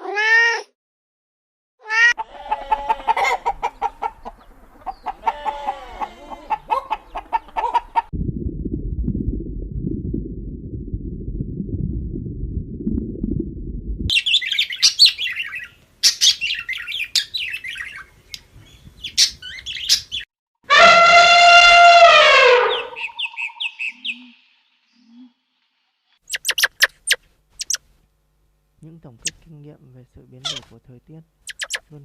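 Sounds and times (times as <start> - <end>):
birds chirping and twittering: 3.3 - 8.1, 14.1 - 20.3, 22.7 - 25.3, 26.3 - 27.8, 31.5 - 31.8
low rumbling noise: 8.1 - 14.1
loud long falling bird call: 20.7 - 24.5.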